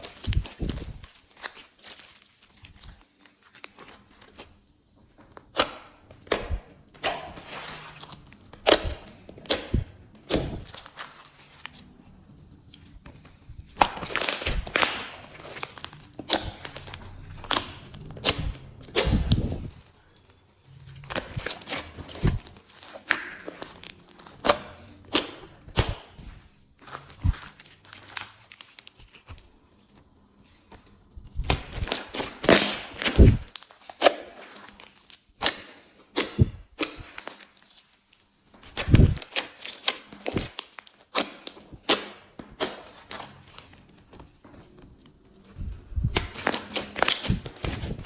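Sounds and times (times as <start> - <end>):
slime popping and crackling: 5.3 - 11.8, 12.8 - 20.2, 20.8 - 29.3, 31.3 - 37.6.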